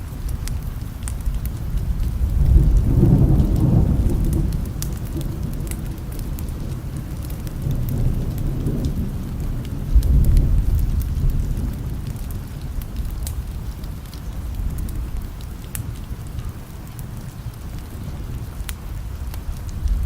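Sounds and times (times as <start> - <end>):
rain drops ticking: 0.0 - 20.0
steady rain: 0.0 - 20.0
distant thunder rolling: 1.6 - 13.8.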